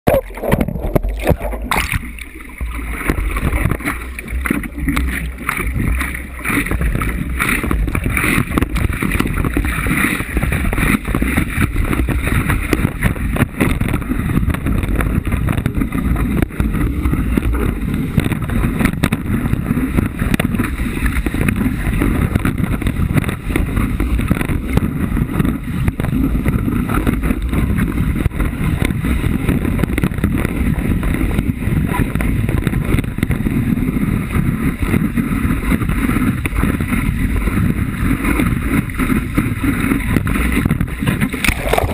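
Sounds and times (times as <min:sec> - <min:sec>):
water rushing: 0:00.0 - 0:25.6, 0:36.4 - 0:41.9
wind buffeting camera: 0:00.0 - 0:41.9.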